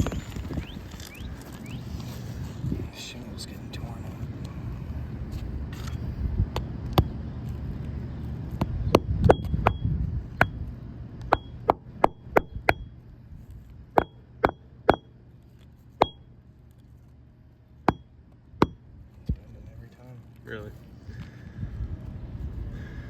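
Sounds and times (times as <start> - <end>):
hammer tapping nails: 11.3 - 12.9, 14.0 - 15.1.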